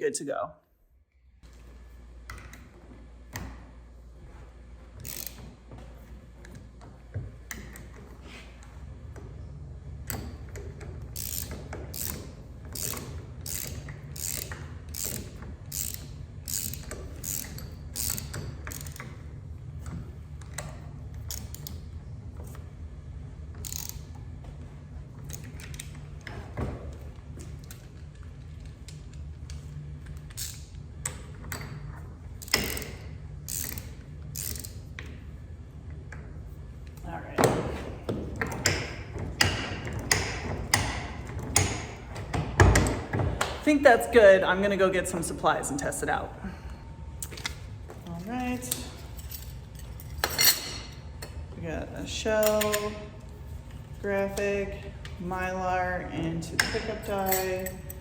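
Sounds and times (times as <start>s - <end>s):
ratchet wrench clicking: 5.0s - 5.4s, 11.1s - 19.1s, 21.2s - 21.8s, 23.6s - 24.1s, 30.2s - 31.6s, 32.4s - 34.9s.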